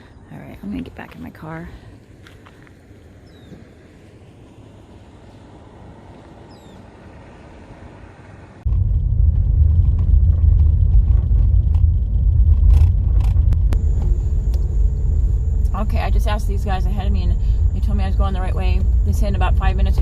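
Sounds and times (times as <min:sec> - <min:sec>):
faint outdoor background: 0:00.0 - 0:20.0
car rumbling on dirt road: 0:02.2 - 0:20.0.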